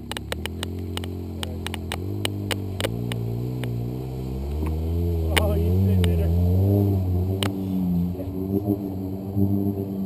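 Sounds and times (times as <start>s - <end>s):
sharp clicks: 0.0s - 3.8s
vehicle engine at low revs: 0.0s - 10.0s.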